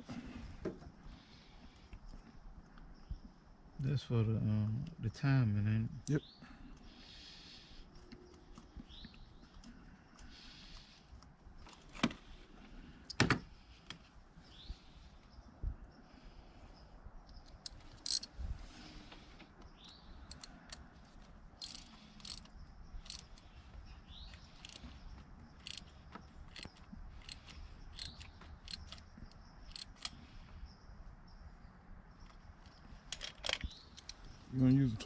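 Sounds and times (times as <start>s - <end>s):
ratchet wrench clicking: 17.5s - 18.3s, 20.2s - 20.8s, 21.6s - 23.4s, 24.3s - 24.8s, 25.6s - 25.9s, 26.5s - 30.2s, 34.0s - 34.2s.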